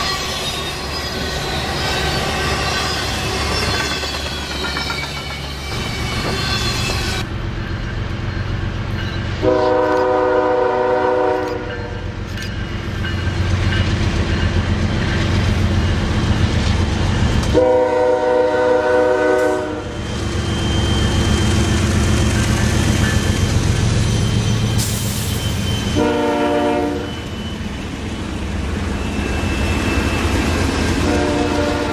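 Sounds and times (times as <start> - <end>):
train rumbling on rails: 0.0 - 31.9
locomotive air horn blasts: 9.4 - 12.0, 17.5 - 20.0, 25.9 - 27.2, 31.0 - 31.9.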